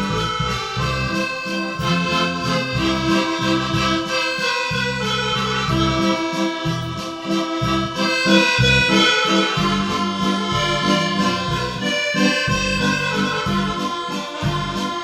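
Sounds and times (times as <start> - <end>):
accordion-like melody: 0.0 - 15.0
rhythmic bass: 0.0 - 15.0.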